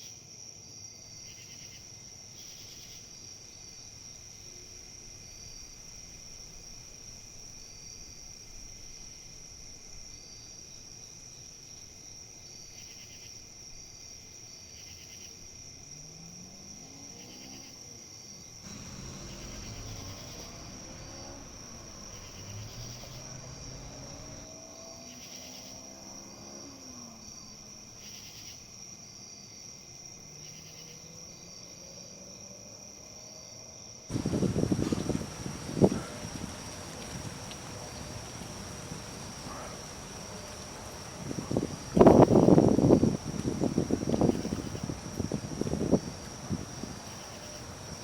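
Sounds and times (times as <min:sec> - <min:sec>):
insects chirring: 0:00.0 - 0:48.0
sudden loud rush of noise: 0:18.7 - 0:24.4, 0:34.1 - 0:48.0.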